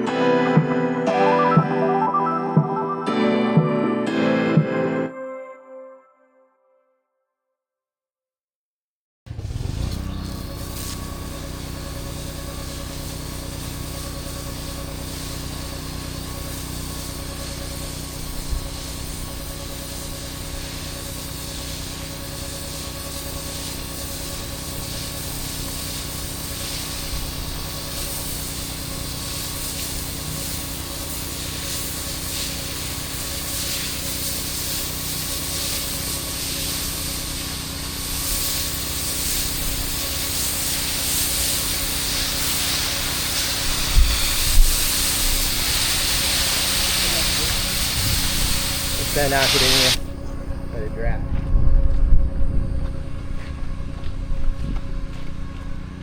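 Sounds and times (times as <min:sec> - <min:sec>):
pressure washer engine running: 0:09.3 - 0:51.3
water spraying with hiss: 0:09.9 - 0:50.2.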